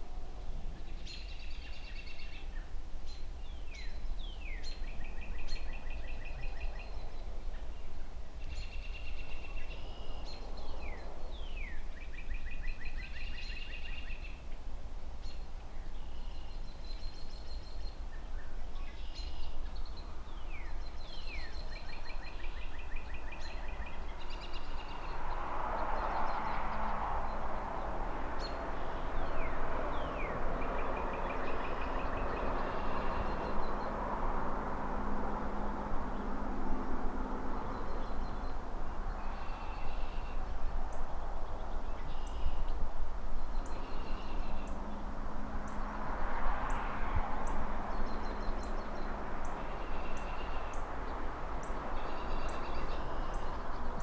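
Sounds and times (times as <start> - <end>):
songbird singing: 0.0 - 54.0
distant city traffic: 18.8 - 54.0
vehicle passing: 20.1 - 54.0.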